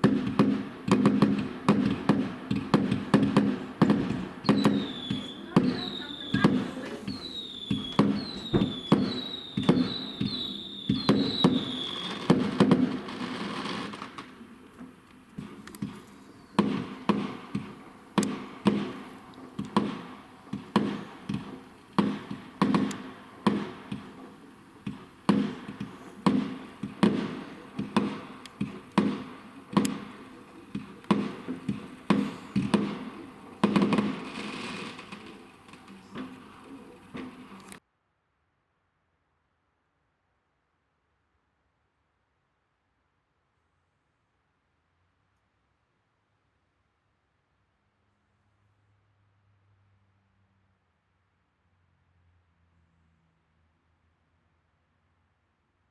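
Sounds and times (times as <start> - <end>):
fireworks bangs: 0.0 - 37.8
falling firework whistles: 3.3 - 14.2, 15.4 - 17.7, 31.1 - 37.8.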